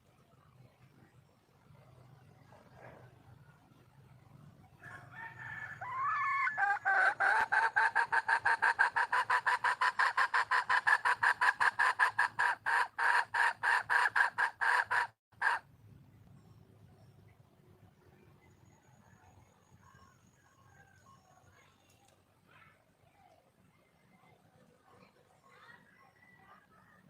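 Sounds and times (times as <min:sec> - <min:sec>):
junglefowl hen clucking: 0:05.8 - 0:15.7.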